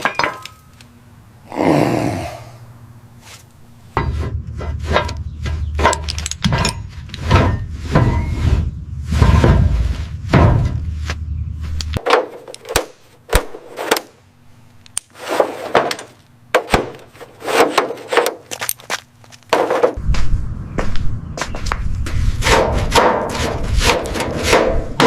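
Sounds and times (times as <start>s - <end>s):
scraping noises: 3.2s - 12.0s, 15.1s - 16.2s, 17.0s - 20.4s, 22.1s - 25.0s.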